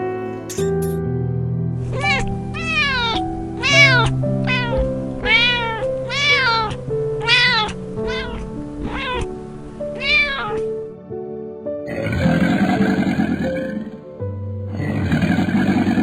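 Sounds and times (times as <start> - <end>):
calm background music: 0.0 - 16.0
cat meowing: 1.9 - 9.4, 10.0 - 10.8.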